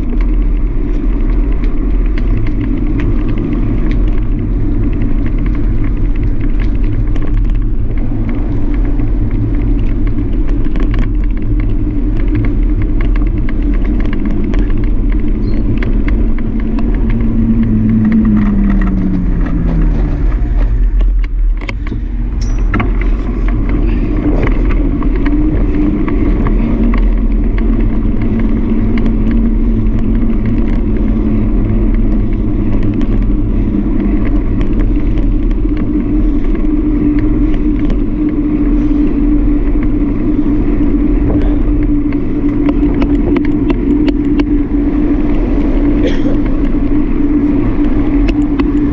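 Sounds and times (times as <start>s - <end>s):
road riding rumble: 0.0s - 48.9s
vehicle passing by: 14.4s - 35.4s.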